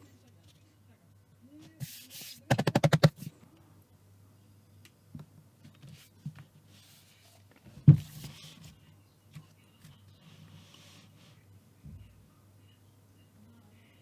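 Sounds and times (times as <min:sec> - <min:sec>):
knock: 0:02.5 - 0:03.1.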